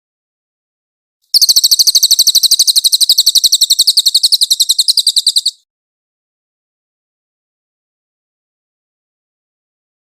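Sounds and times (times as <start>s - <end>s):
bird rapid high trill: 1.3s - 5.6s.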